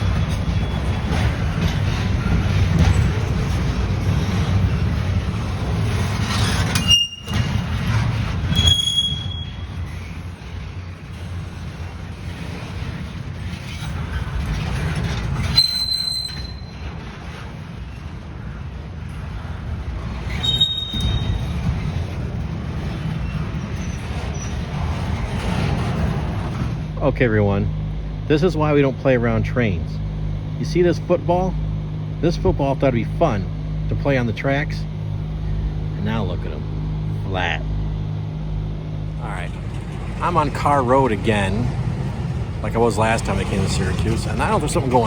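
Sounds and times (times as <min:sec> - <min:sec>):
high-pitched wheel squeals: 0:00.0 - 0:01.3, 0:06.1 - 0:10.4, 0:14.8 - 0:17.2, 0:20.3 - 0:21.9, 0:23.1 - 0:24.9, 0:39.2 - 0:45.0
train rumbling past: 0:00.0 - 0:45.0.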